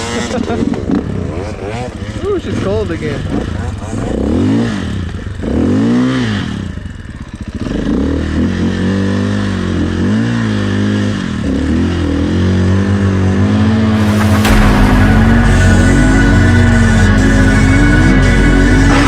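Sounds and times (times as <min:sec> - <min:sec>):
music: 0:14.0 - 0:19.0.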